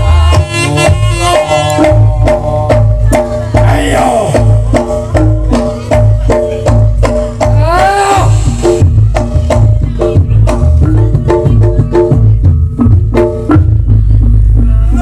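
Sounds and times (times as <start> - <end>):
reedy wind instrument: 0.0 - 4.7
drum strokes: 0.0 - 15.0.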